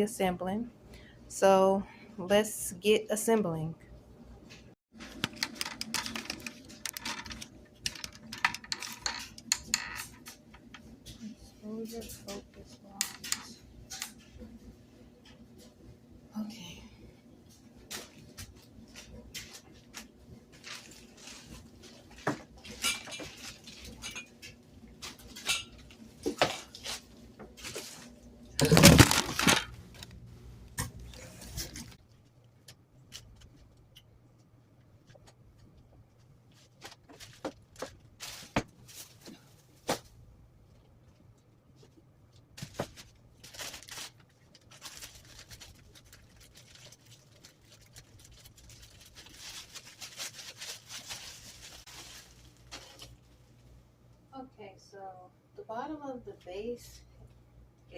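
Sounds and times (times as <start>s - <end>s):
plastic parts knocking and rustling: 5.0s - 10.8s, 28.6s - 30.1s, 36.7s - 40.1s
plastic clatter: 28.6s - 30.1s.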